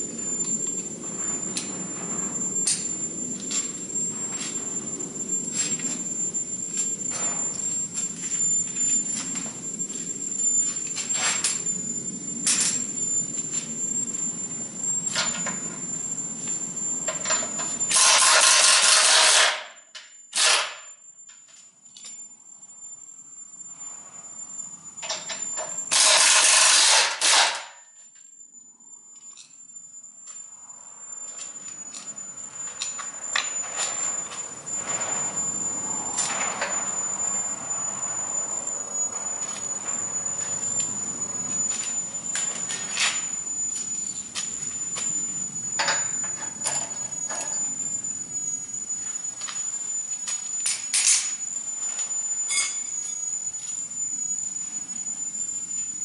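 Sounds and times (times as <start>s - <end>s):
pneumatic air tool bursts: 17.9s - 19.7s, 20.3s - 20.9s, 25.9s - 27.8s.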